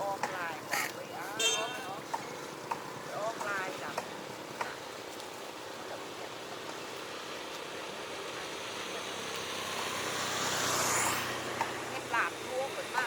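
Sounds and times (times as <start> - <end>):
low engine hum: 0.0 - 13.0
vehicle passing close by: 0.0 - 13.0.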